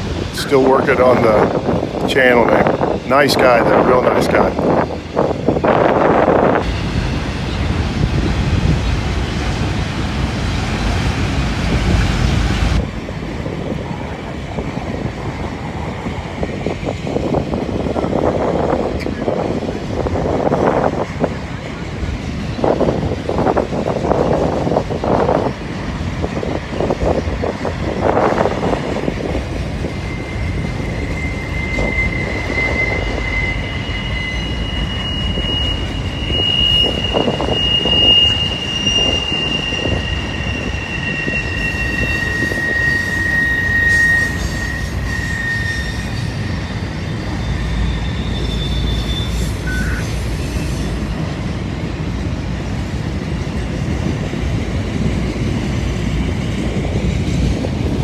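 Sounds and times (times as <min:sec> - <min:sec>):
freight train rumbling past: 0:00.0 - 0:58.0
high wheel squeals: 0:22.6 - 0:51.3.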